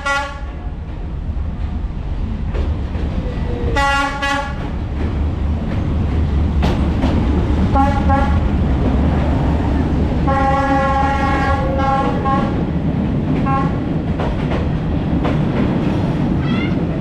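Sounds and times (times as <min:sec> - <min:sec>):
train horn blasts: 0:00.0 - 0:00.7, 0:03.8 - 0:04.6, 0:07.7 - 0:08.4, 0:10.2 - 0:12.6, 0:13.4 - 0:13.8
diesel train rumbling: 0:00.0 - 0:17.0.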